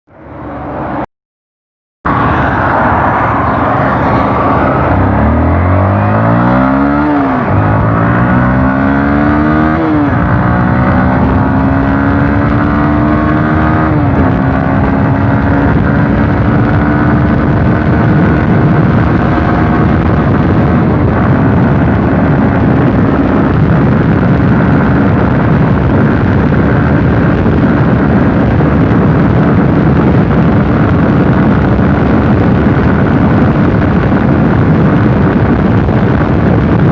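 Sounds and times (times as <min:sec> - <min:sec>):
motorcycle engine accelerating: 0:02.1 - 0:36.9.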